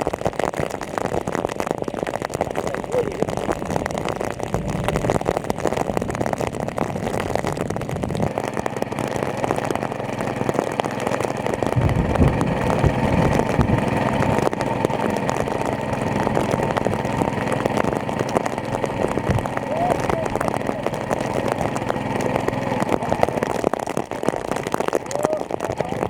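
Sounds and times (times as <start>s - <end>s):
dense crackling patter: 0.0s - 26.0s
water pump engine running: 0.0s - 26.0s
heavy low thumps: 11.2s - 18.1s.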